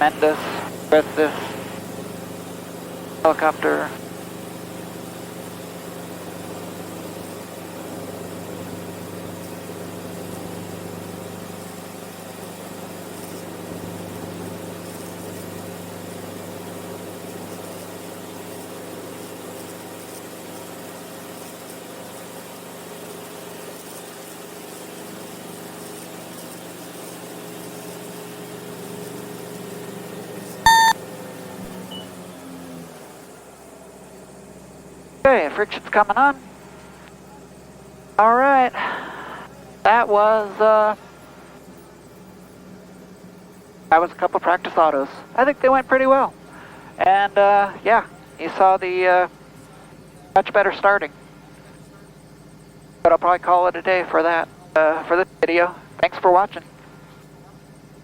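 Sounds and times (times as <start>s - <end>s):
helicopter engine and rotor: 0.0s - 22.0s, 23.0s - 25.2s, 35.2s - 58.0s
short loud beep: 30.7s - 31.0s.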